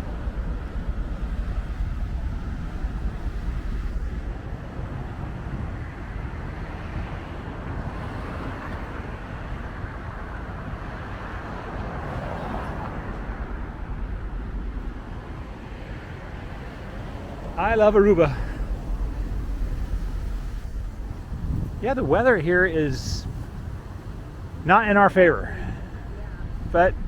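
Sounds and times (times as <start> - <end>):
traffic noise: 0.0 - 27.0
wind buffeting microphone: 0.0 - 27.0
vehicle passing: 5.8 - 27.0.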